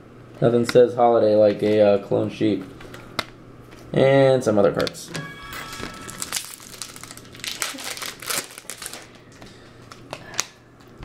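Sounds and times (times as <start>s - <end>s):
foil wrapper crinkling and tearing: 6.2s - 9.2s.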